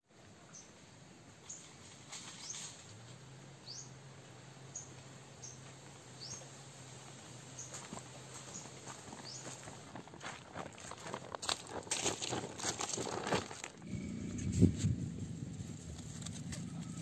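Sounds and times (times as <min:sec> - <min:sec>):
quiet woodland ambience: 0:00.0 - 0:17.0
birds chirping: 0:00.4 - 0:10.2.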